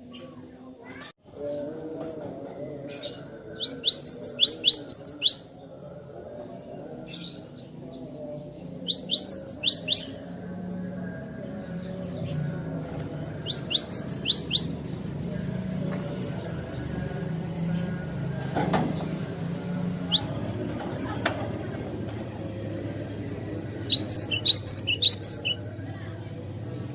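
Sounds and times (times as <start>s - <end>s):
bird singing rising notes: 3.6s - 5.5s, 8.8s - 10.2s, 13.4s - 15.7s, 19.0s - 20.4s, 23.1s - 25.6s.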